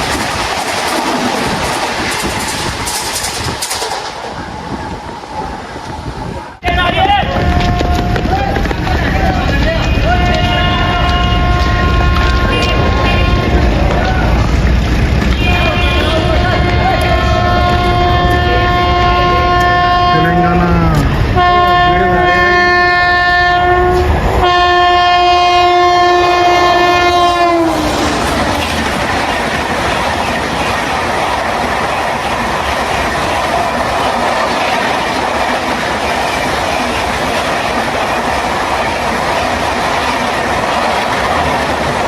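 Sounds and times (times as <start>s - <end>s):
train coaches rushing and rattling: 0.0s - 42.0s
train horn blasts: 7.3s - 8.4s, 9.8s - 13.9s, 15.3s - 28.6s.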